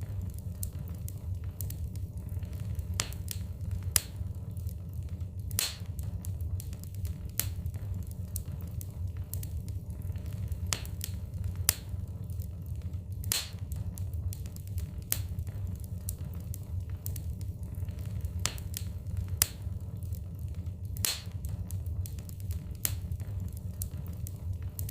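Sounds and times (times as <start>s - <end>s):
burning logs crackling and popping: 0.0s - 24.9s
fire flame rumble: 0.0s - 24.9s.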